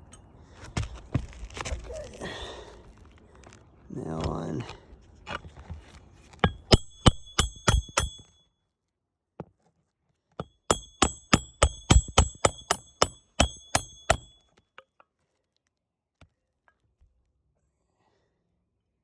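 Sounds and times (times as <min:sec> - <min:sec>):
hammer driving nails ringing: 0:06.4 - 0:08.4, 0:10.4 - 0:14.4.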